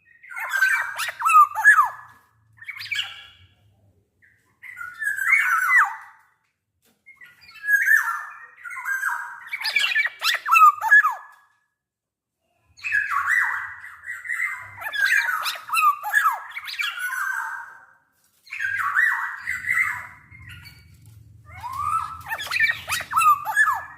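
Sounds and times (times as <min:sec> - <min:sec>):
bird squawking calls: 0:21.5 - 0:23.9.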